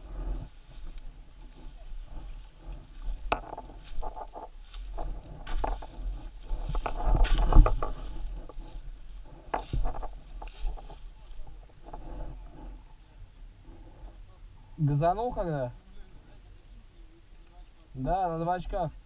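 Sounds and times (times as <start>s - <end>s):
low steady rumble: 0.0s - 18.1s
twigs and branches snapping: 3.0s - 11.6s.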